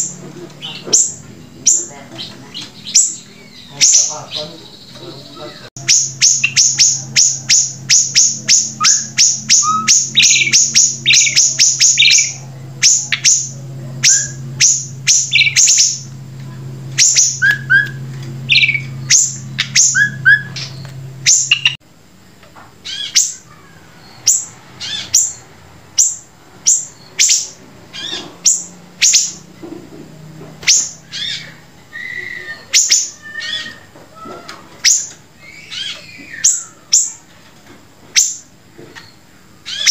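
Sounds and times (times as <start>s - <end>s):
low steady hum: 0.0s - 39.8s
songbird singing high notes: 2.8s - 16.1s, 17.0s - 21.8s.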